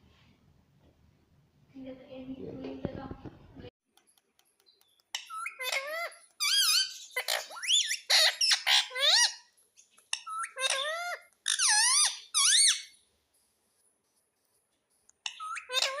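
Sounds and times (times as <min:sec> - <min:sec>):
parrot squeaky calls: 0:05.1 - 0:13.0, 0:15.1 - 0:16.0.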